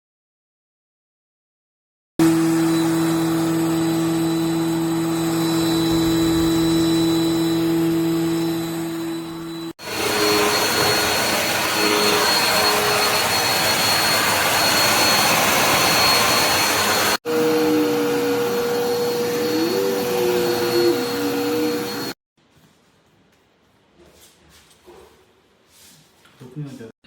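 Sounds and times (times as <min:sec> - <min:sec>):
vacuum cleaner running: 0:02.2 - 0:22.2.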